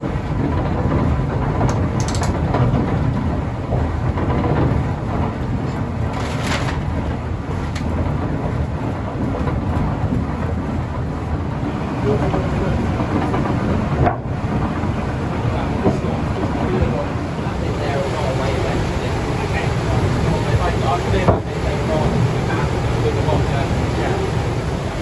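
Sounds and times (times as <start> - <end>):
watermill machinery rumbling: 0.0 - 25.0
machinery knocks and clatters: 0.2 - 10.8.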